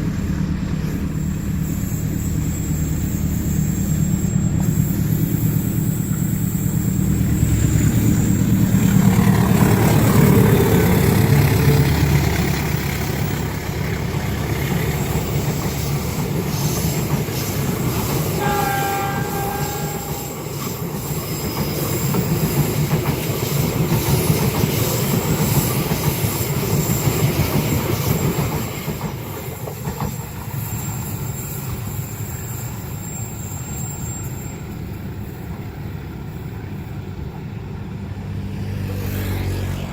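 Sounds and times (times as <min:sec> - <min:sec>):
train wheels rumbling: 0:00.0 - 0:39.9
train horn blast: 0:18.3 - 0:20.8.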